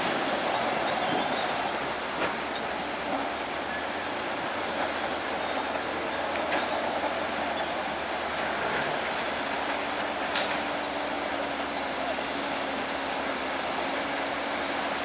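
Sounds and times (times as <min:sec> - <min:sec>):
heavy diesel machinery running: 0:00.0 - 0:15.0.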